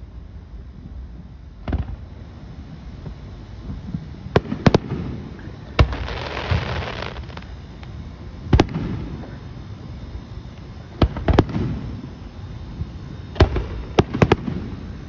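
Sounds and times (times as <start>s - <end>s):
fireworks booming: 0.8s - 9.3s, 11.0s - 12.1s, 12.8s - 15.0s
fireworks crackling: 1.7s - 9.2s, 13.3s - 15.0s.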